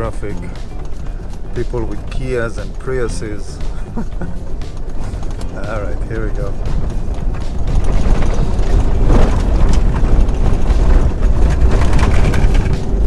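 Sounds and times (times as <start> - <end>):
truck clattering and rattling: 0.0 - 13.0
tyres rumbling on rough road: 0.0 - 13.0.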